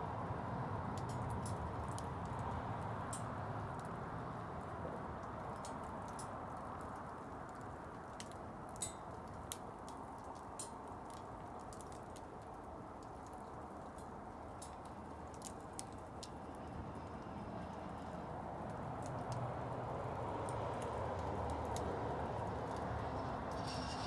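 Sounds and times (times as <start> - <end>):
bonfire crackling and popping: 0.8 - 24.0
fire steady low rush: 11.5 - 24.0.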